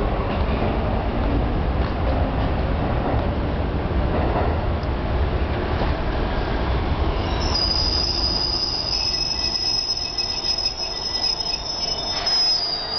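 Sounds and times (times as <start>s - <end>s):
train rumbling through station: 0.0s - 12.9s
high squeal of train wheels: 6.2s - 12.9s.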